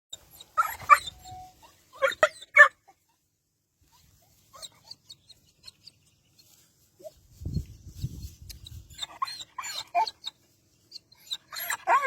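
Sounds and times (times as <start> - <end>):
faint high squeaks: 0.1 - 2.2.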